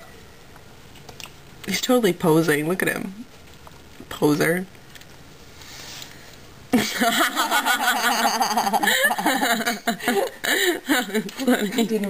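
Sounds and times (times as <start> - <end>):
people laughing: 6.8 - 12.0.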